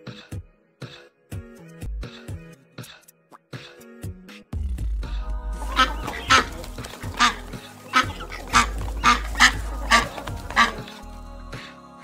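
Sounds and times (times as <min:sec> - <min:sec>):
background music: 0:00.0 - 0:12.0
goose honking: 0:05.6 - 0:11.0.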